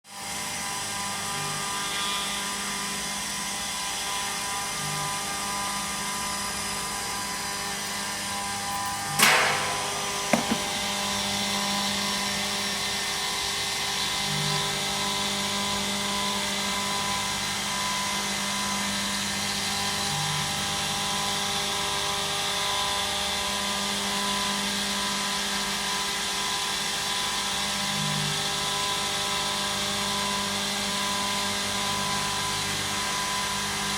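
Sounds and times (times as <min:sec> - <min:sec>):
small knocks: 0:09.4 - 0:10.8.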